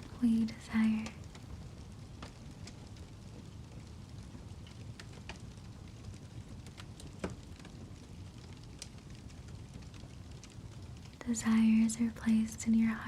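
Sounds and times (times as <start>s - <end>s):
fire crackling and popping: 0.0s - 13.0s.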